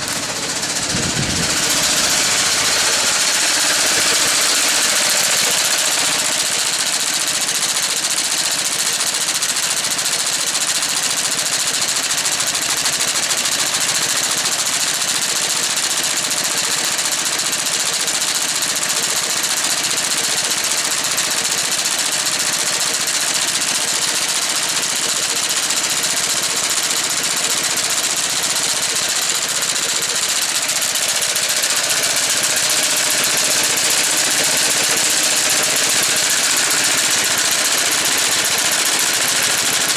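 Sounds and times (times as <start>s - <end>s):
mower cutter bar working: 0.0s - 9.2s, 20.8s - 39.9s
walk-behind tractor engine running: 0.0s - 39.9s.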